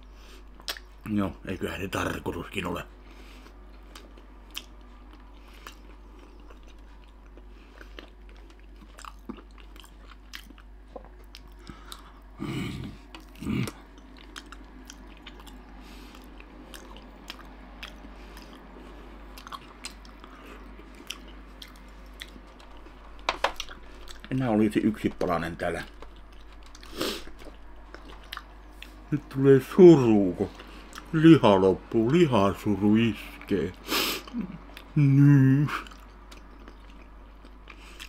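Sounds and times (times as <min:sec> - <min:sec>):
close chewing with wet mouth clicks: 0:00.6 - 0:00.9, 0:03.4 - 0:12.2, 0:13.0 - 0:24.3, 0:25.8 - 0:29.0, 0:35.8 - 0:38.0.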